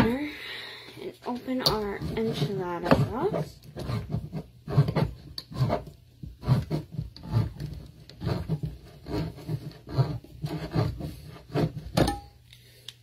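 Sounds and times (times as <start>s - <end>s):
hand-crank can opener grinding: 1.6s - 11.9s.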